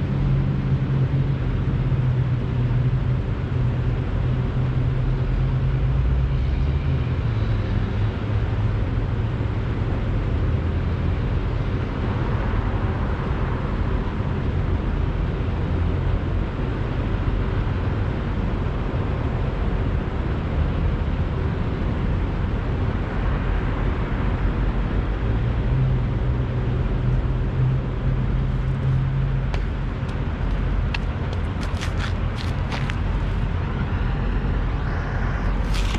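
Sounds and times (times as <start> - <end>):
diesel truck engines idling: 27.3 - 35.9.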